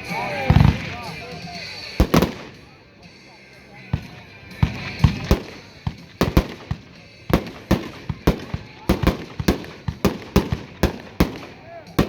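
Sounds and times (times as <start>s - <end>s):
firework bangs: 0.5s - 1.2s, 2.0s - 2.7s, 4.0s - 12.0s.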